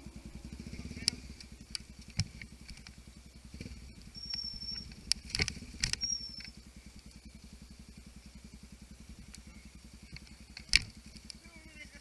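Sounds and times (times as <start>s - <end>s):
motorcycle engine idling: 0.0s - 12.0s
sharp clicks: 3.6s - 6.6s.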